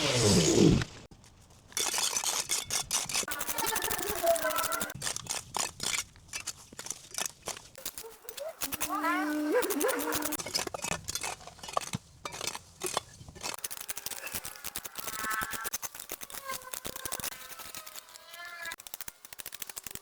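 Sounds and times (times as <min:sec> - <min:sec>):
pruning shears snipping: 0:00.1 - 0:20.0.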